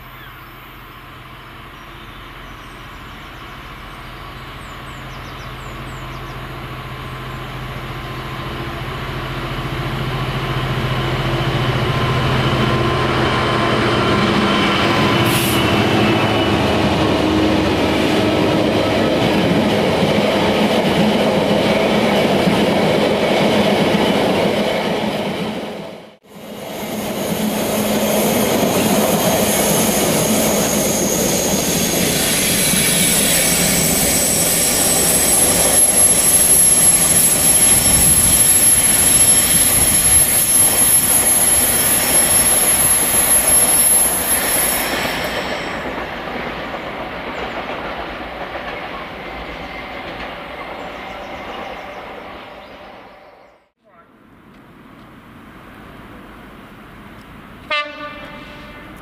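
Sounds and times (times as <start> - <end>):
diesel locomotive engine: 0.0 - 59.0
train wheels squealing: 13.0 - 16.9, 26.7 - 46.8.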